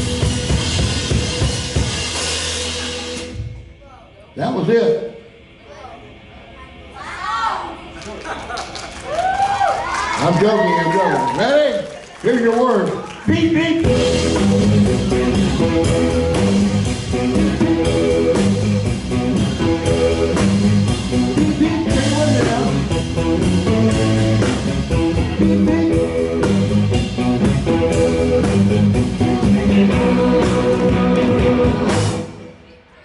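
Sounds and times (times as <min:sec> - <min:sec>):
blues band playing: 0:00.0 - 0:03.6, 0:13.3 - 0:32.6
lead guitar: 0:13.8 - 0:32.8.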